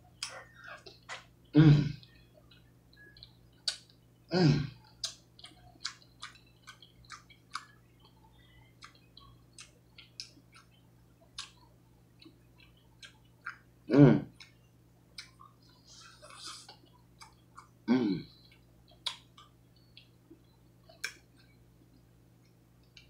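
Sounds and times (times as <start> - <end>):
wet chewing: 4.8 - 13.7, 18.4 - 21.6.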